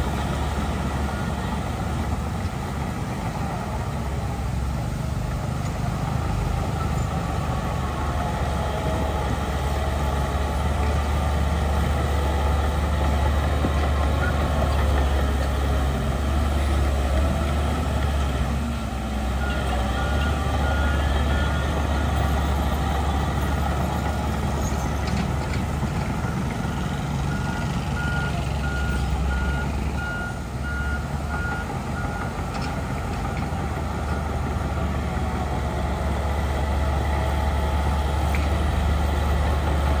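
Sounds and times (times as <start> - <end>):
diesel machinery engine hum: 0.0 - 40.0
reversing alarm beeping: 26.2 - 32.3.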